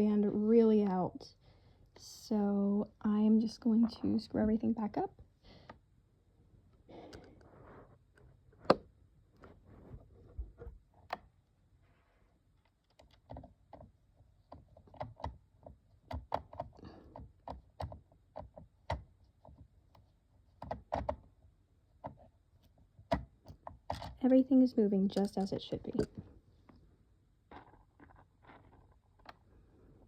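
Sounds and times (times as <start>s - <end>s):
plastic parts clicking and knocking: 12.6s - 24.2s, 25.1s - 26.3s.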